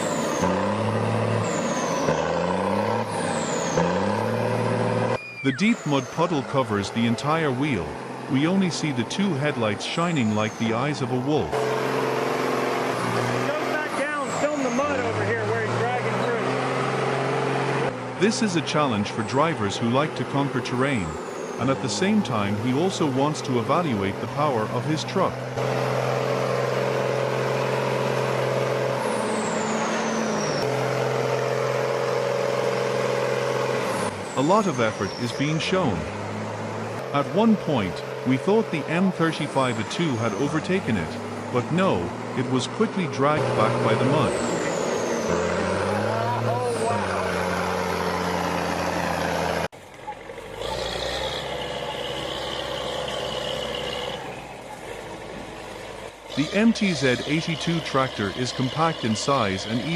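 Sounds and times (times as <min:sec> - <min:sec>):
truck engine under load: 0:00.0 - 0:59.9
high falling whistle: 0:05.2 - 0:06.3, 0:44.2 - 0:46.9.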